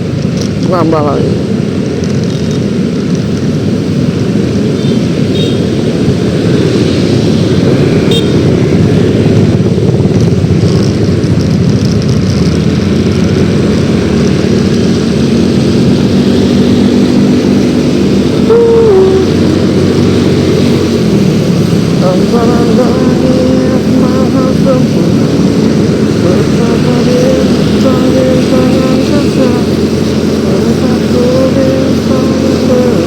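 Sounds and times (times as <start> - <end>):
scooter engine and road noise: 0.0 - 33.0
wind noise on microphone: 1.4 - 33.0.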